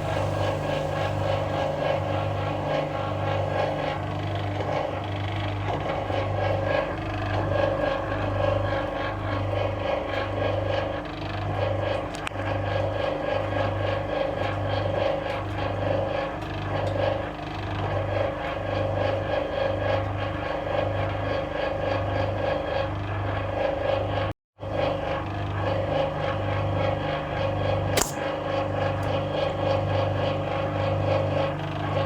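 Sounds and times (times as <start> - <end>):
washing machine pump humming: 0.0 - 10.4
sharp click: 28.0 - 28.3.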